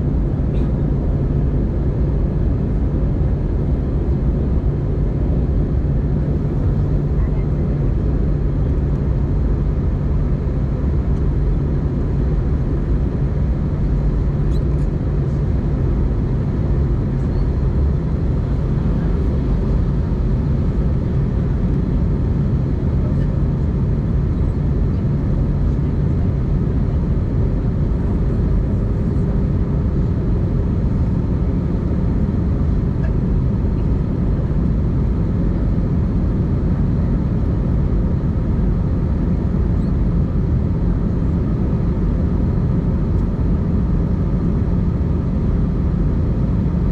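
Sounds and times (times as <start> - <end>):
airplane cabin engine hum: 0.0 - 46.9.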